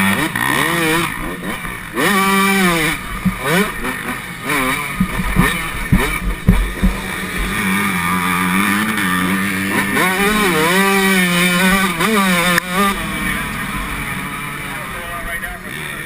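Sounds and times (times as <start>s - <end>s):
motocross engine revving: 0.0s - 16.0s
engine knocks: 3.1s - 7.8s.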